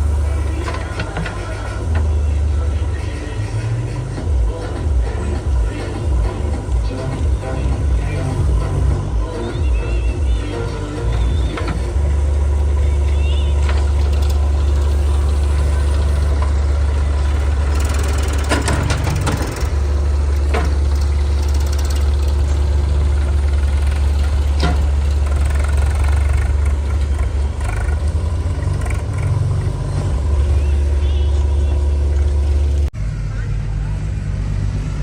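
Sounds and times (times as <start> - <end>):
heavy diesel engine running: 0.0 - 35.0
short knocks and clanks: 24.2 - 25.1.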